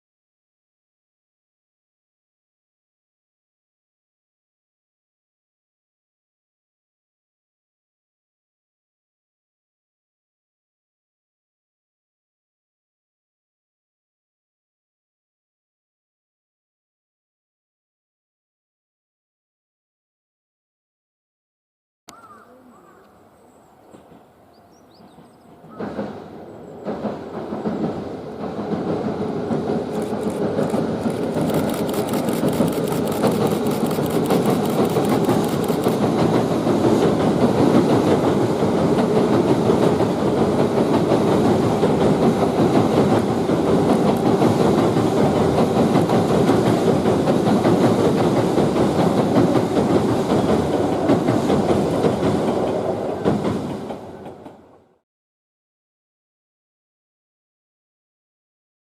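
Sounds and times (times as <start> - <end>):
electric train passing at speed: 23.2 - 55.0
rapid high ticking: 30.0 - 36.1.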